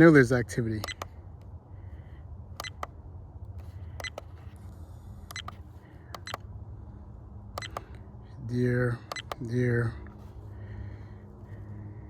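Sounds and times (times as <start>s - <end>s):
steady low rumble: 0.0s - 12.0s
camera buttons clicking: 0.8s - 1.5s, 2.6s - 6.5s, 7.6s - 8.0s, 9.1s - 9.5s.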